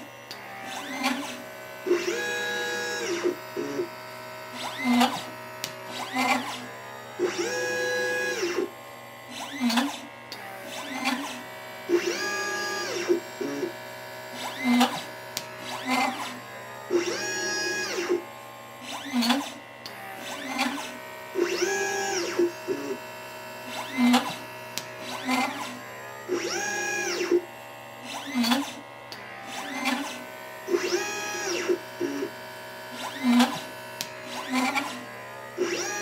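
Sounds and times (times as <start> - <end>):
stepper motors whining: 0.0 - 36.0
short machine clicks: 33.0 - 35.0.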